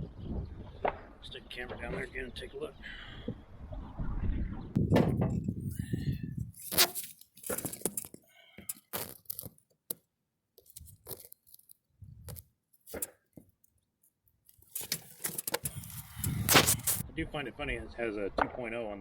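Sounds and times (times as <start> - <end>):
tools clicking and rattling: 6.6 - 10.0, 14.5 - 17.0.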